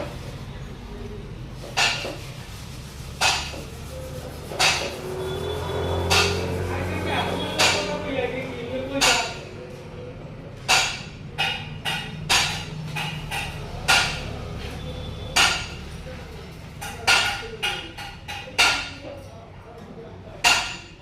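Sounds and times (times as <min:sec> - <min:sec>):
tools knocking on metal: 0:10.7 - 0:14.3.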